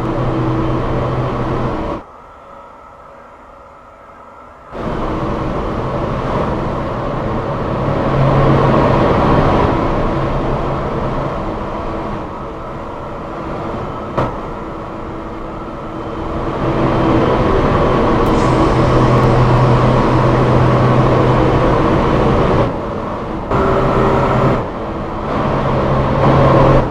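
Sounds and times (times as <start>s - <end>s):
train wheels rumbling on track: 10.2s - 25.8s
low motor hum: 18.3s - 24.2s.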